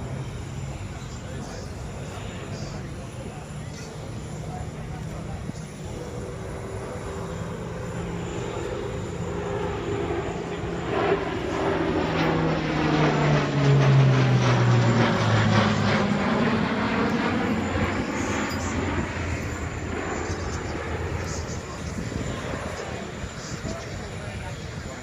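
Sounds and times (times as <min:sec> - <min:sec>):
large aircraft flying low past: 0:00.0 - 0:25.0.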